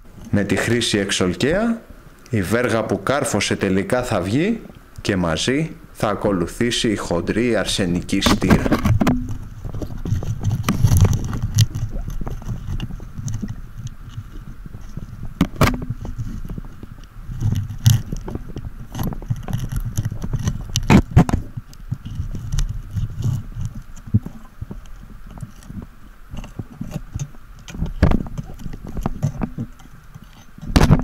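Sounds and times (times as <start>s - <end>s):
underwater knocks and clicks: 8.2s - 31.0s
low rumble of water: 8.9s - 30.7s.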